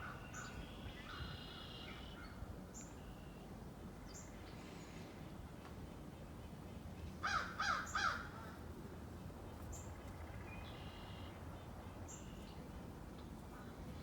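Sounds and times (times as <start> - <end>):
crow cawing: 7.2 - 8.3.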